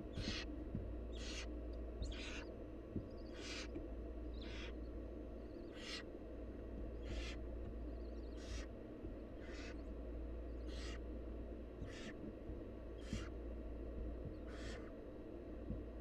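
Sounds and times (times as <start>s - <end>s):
low hum: 0.0s - 16.0s
owl chicks hissing: 0.1s - 0.5s, 1.1s - 2.5s, 3.1s - 3.7s, 4.4s - 4.8s, 5.5s - 6.1s, 7.0s - 7.4s, 8.0s - 8.7s, 9.4s - 9.9s, 10.6s - 11.0s, 11.8s - 12.2s, 13.0s - 13.4s, 14.3s - 14.9s.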